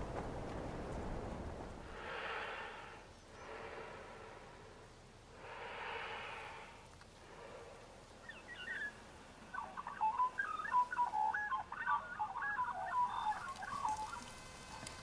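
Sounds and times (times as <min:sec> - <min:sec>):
rapid bird chirps: 0:08.2 - 0:14.8.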